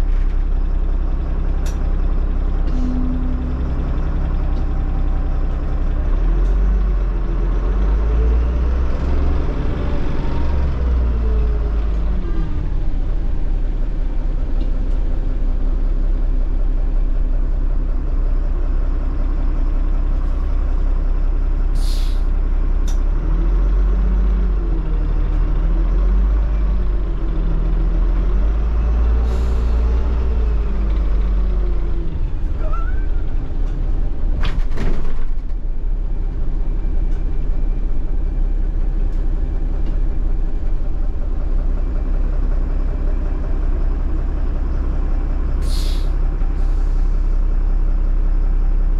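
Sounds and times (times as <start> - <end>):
bus diesel engine: 0.0 - 48.9
air hisses: 45.6 - 46.2.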